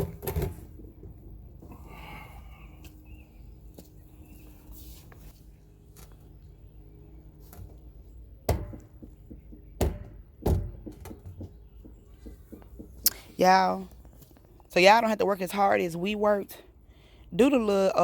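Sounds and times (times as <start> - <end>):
hard knocks: 8.5 - 13.0.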